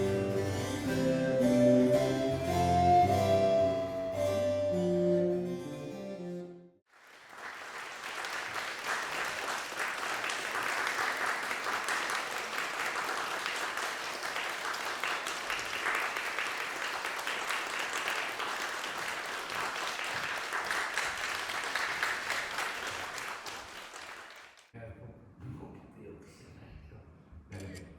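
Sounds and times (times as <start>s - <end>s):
audience applauding: 6.9s - 24.7s.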